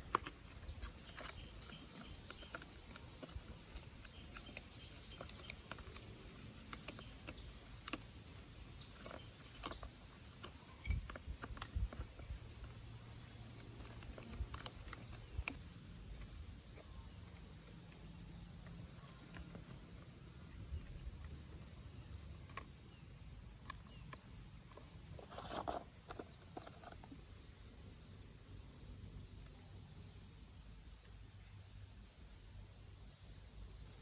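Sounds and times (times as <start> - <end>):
small clicks and knocks: 0.0 - 20.1, 22.2 - 27.3
insect trilling: 0.0 - 34.0.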